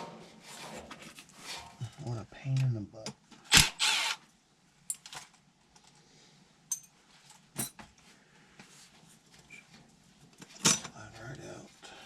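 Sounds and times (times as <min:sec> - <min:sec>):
short metal scrape: 0:00.0 - 0:01.8.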